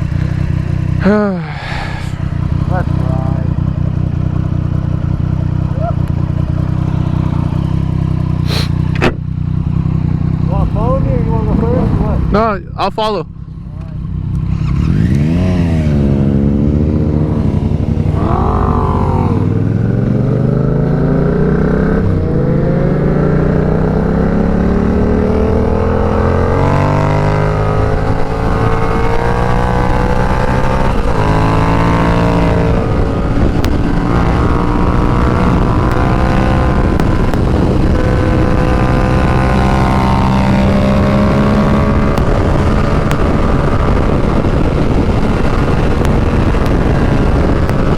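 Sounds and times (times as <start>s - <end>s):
motorcycle engine accelerating: 0.0s - 47.9s.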